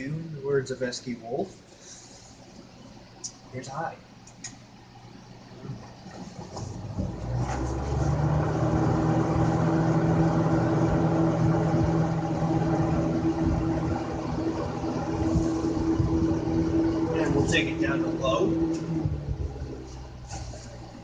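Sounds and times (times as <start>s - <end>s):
box fan running: 0.0s - 21.0s
electric motor hum: 5.4s - 21.0s.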